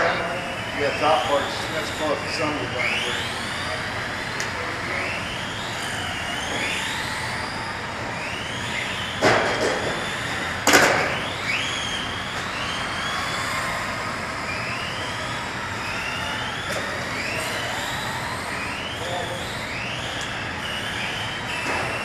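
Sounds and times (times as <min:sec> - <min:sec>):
electric rc car motors whining: 0:00.0 - 0:22.0.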